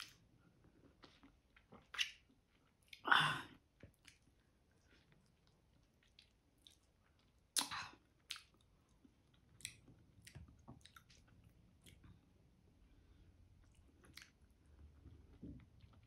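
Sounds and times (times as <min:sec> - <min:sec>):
wet chewing smacks: 0:03.8 - 0:12.2, 0:13.6 - 0:14.6.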